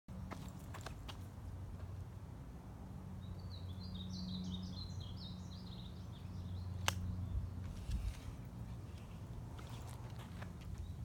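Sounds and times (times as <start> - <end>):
songbird chirping: 3.2 - 8.0.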